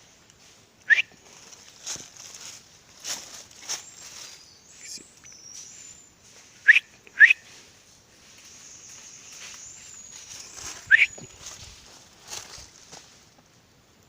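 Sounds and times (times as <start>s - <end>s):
person whistling rising notes: 10.8s - 11.2s.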